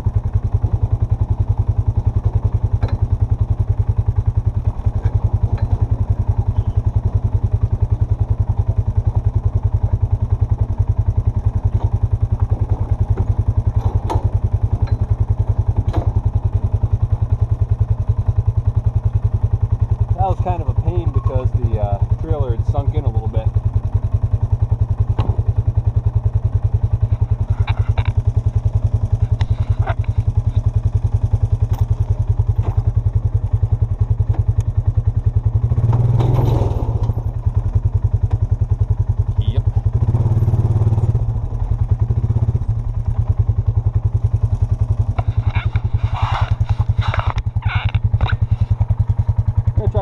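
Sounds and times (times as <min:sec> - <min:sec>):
vehicle engine throbbing: 0:00.0 - 0:50.0
light knocks and clatters: 0:11.6 - 0:16.3, 0:26.9 - 0:28.2.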